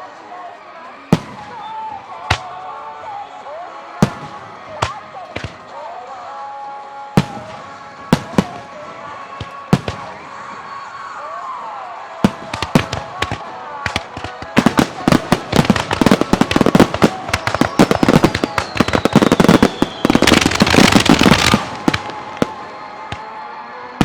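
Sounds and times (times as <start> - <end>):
fireworks bursting: 1.1 - 24.0
firework whistle gliding down: 14.6 - 24.0.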